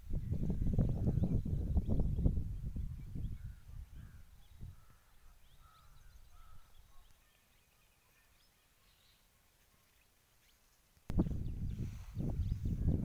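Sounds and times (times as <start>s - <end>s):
bird chirps: 2.8s - 10.7s
low microphone rumble: 11.1s - 13.0s.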